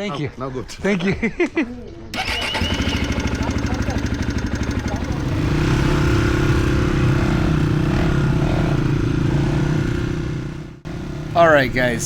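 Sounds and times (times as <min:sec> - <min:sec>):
dirt bike engine running: 0:02.4 - 0:12.0.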